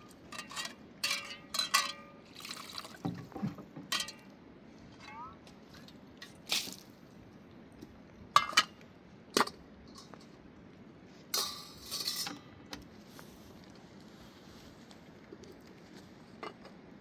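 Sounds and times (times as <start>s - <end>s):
dishes rattling and scraping: 0.0s - 2.1s, 3.1s - 4.2s, 11.4s - 12.5s.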